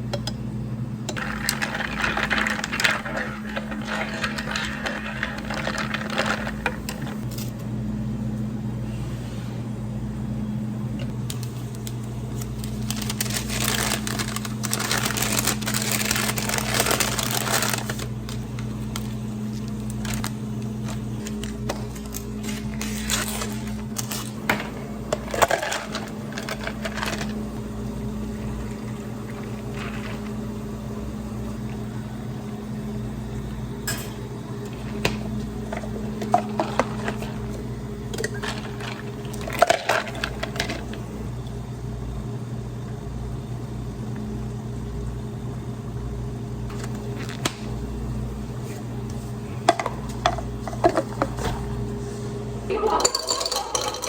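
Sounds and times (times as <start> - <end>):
low machine hum: 0.0 - 54.0
dishes and utensils clinking: 33.8 - 34.3, 52.7 - 54.0.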